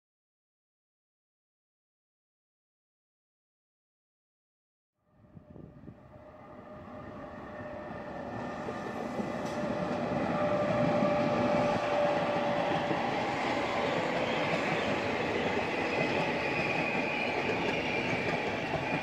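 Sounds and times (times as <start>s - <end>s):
passenger train passing: 5.3s - 19.0s.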